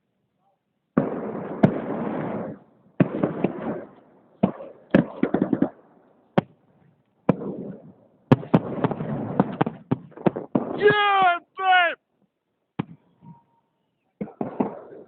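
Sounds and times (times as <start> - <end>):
fireworks bangs and crackling: 1.0 - 5.8, 7.3 - 12.0, 14.2 - 15.0.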